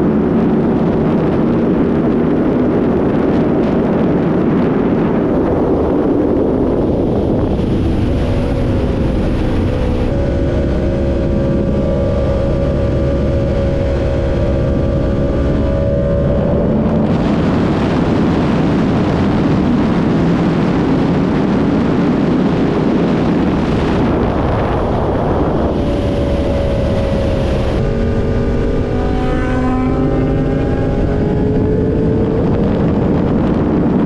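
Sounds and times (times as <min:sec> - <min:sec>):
motorcycle engine: 0:00.0 - 0:34.0
wind noise: 0:00.0 - 0:34.0.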